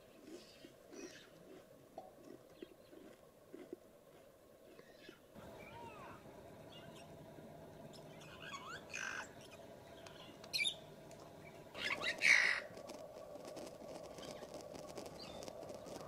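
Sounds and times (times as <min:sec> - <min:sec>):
birds chirping: 0:04.9 - 0:12.8, 0:14.2 - 0:16.0.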